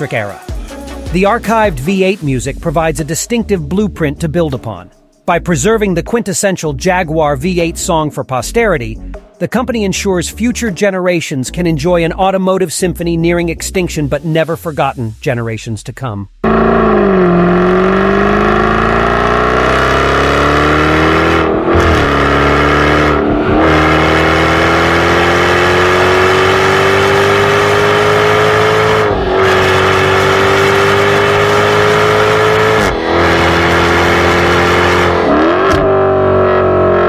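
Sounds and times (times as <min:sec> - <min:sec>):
sports car engine accelerating: 0:16.4 - 0:37.0.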